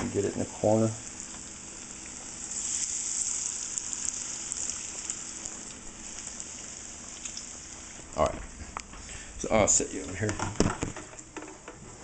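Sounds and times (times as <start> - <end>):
fish deep-frying in oil: 0.0 - 8.3.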